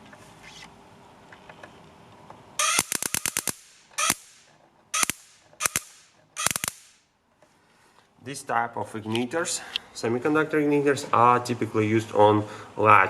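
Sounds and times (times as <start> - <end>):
igniter sparking snaps: 2.6 - 7.1.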